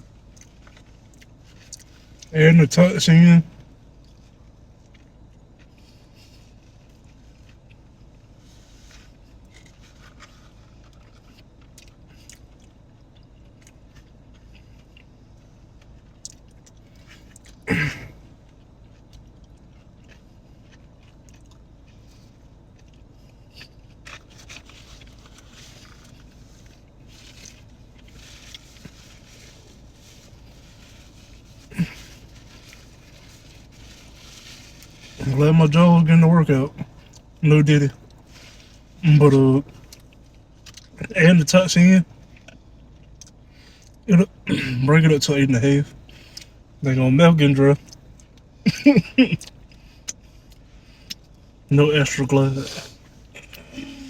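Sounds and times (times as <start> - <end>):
person chewing food: 0.1 - 2.3, 4.0 - 35.2, 39.7 - 41.0, 42.2 - 44.1.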